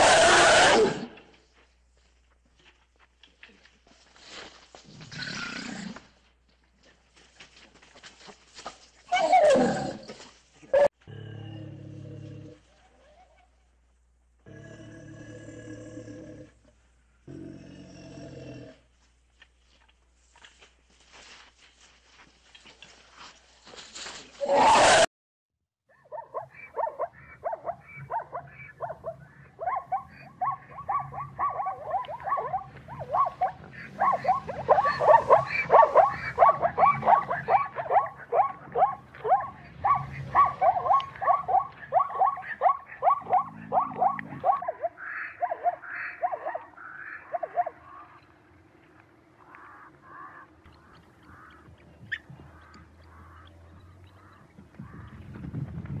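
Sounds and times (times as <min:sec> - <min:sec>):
zebras yipping barks: 0:00.0 - 0:01.2, 0:09.1 - 0:10.9, 0:25.9 - 0:48.3.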